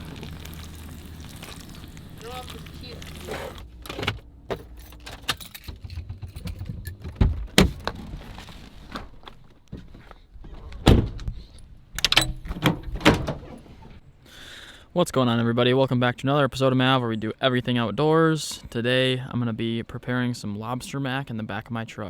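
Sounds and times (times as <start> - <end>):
low rumble: 0.0 - 8.4
sharp clicks and knocks: 3.9 - 8.0.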